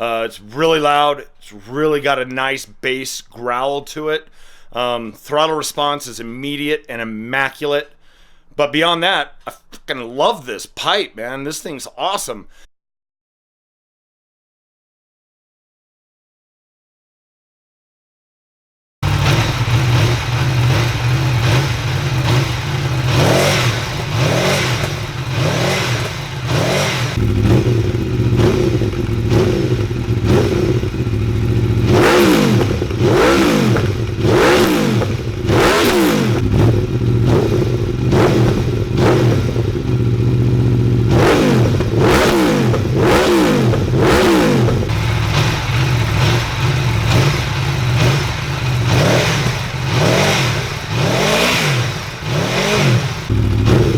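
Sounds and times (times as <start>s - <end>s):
motorcycle engine idling and revving: 19.0s - 53.9s.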